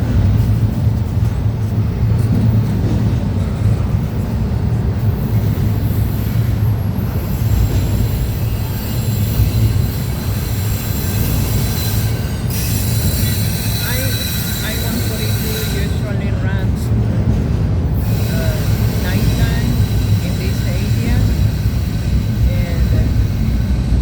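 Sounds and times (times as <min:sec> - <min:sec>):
freight train wheels rumbling: 0:00.0 - 0:24.0
high-pitched wheel squeal: 0:07.4 - 0:16.0.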